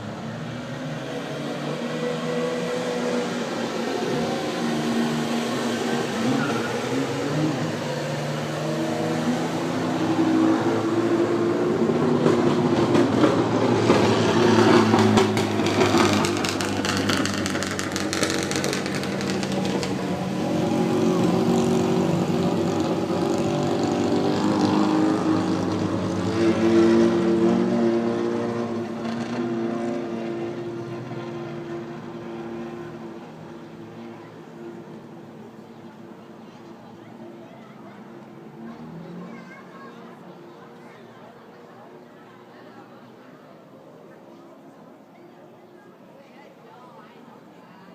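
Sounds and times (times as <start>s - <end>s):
racing car engines revving: 0.0s - 45.1s
rapid engine crackle: 14.9s - 20.3s.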